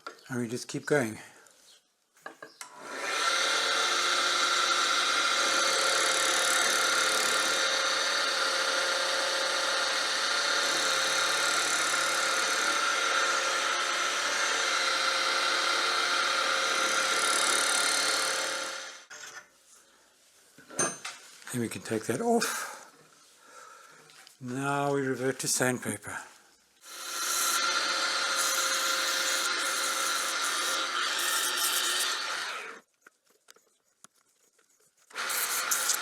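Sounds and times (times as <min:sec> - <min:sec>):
small lathe running: 0:02.6 - 0:19.1, 0:26.8 - 0:32.8, 0:35.1 - 0:36.0
cutter nibbling wood: 0:26.9 - 0:32.8, 0:35.1 - 0:36.0.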